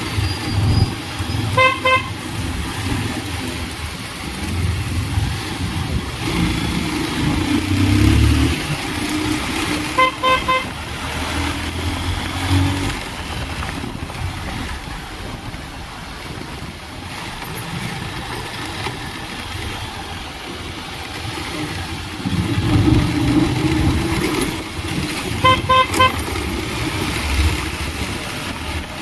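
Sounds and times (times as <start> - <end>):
motorcycle engine running: 0.0 - 29.0
road noise: 0.0 - 29.0
vehicle horn beeping: 1.4 - 2.3, 9.9 - 10.8, 25.4 - 26.3.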